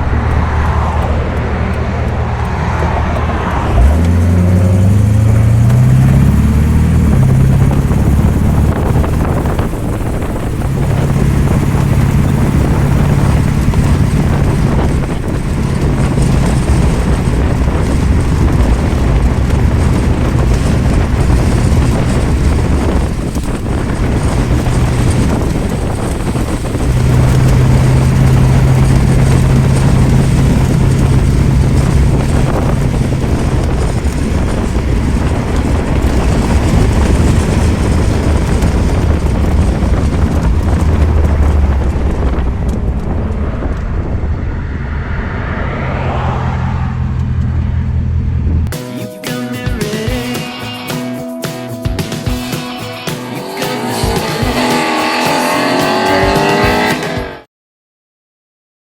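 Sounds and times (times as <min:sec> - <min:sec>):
car engine accelerating: 0:00.0 - 0:48.7, 0:52.4 - 0:57.5
road and wind noise: 0:00.0 - 0:48.7, 0:51.2 - 0:57.5.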